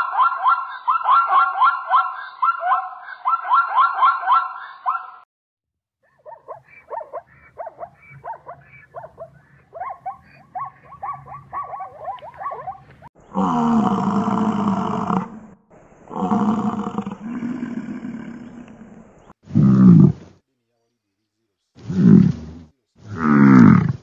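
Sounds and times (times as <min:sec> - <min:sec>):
zebra barking yelps: 0:00.0 - 0:05.2, 0:06.0 - 0:13.1
bison deep bellow: 0:13.3 - 0:20.2, 0:21.8 - 0:24.0.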